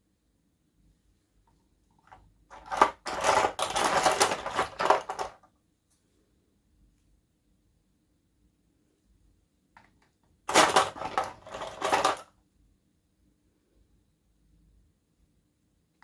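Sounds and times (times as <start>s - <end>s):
plastic packaging clicking and crinkling: 2.0s - 5.4s, 10.5s - 12.3s.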